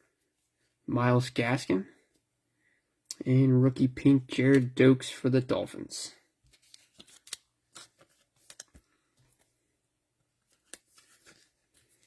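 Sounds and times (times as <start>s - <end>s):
cards sliding and clicking: 6.5s - 8.8s.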